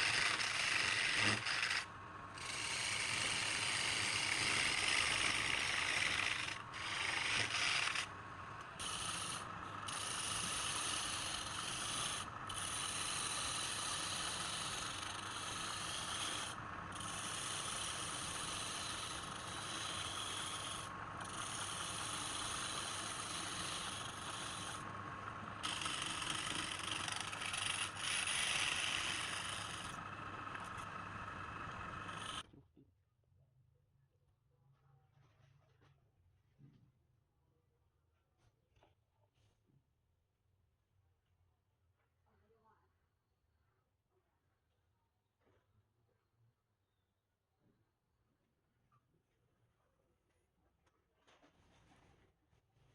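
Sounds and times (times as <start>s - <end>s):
wood scraping on lathe: 0.0s - 32.4s.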